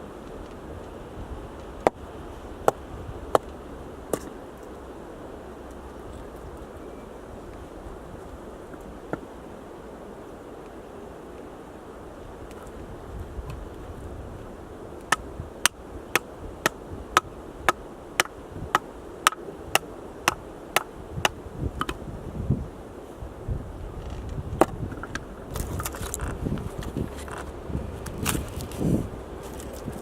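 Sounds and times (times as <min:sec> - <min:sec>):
tool striking firewood: 0:02.6 - 0:03.5, 0:15.1 - 0:22.0.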